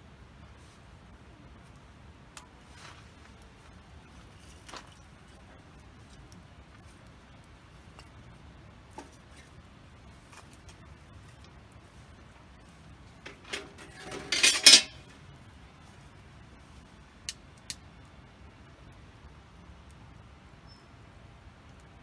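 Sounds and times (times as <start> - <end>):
wood fire crackling: 0.1 - 22.0
metal camp gear clattering: 13.2 - 15.1.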